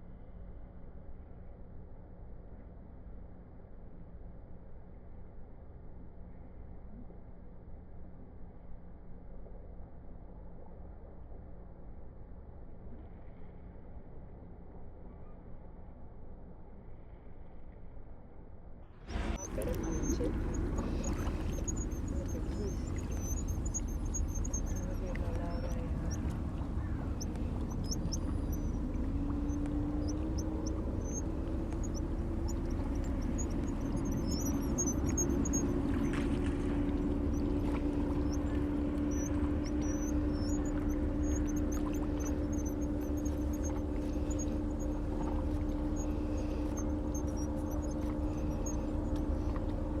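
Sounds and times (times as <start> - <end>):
faint high peeps: 19.1 - 50.0
low rumble: 19.1 - 50.0
steady motor hum: 19.1 - 50.0.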